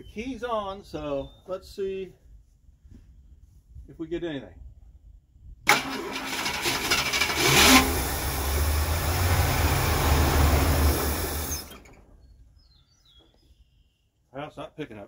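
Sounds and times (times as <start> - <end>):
car engine cranking and running: 5.7 - 12.2.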